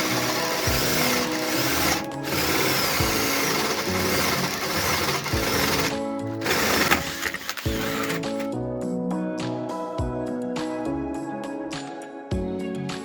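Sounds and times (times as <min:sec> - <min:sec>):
cordless drill boring into hardwood: 0:00.0 - 0:08.5.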